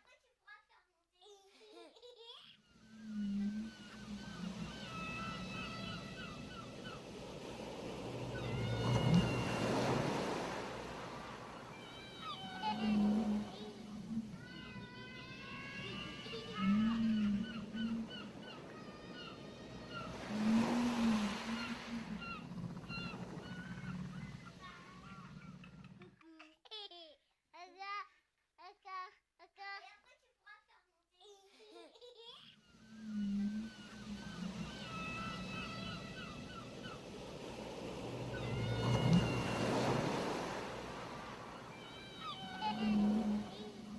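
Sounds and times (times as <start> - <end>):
ocean wave washing on shore: 2.8 - 25.8, 32.8 - 43.9
seagulls calling: 2.8 - 26.0, 32.7 - 43.9
low moaning tone: 2.9 - 6.4, 7.6 - 18.3, 32.8 - 43.9.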